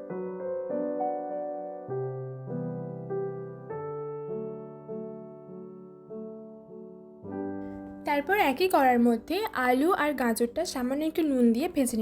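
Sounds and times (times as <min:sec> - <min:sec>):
slow soft keyboard melody: 0:00.0 - 0:09.6.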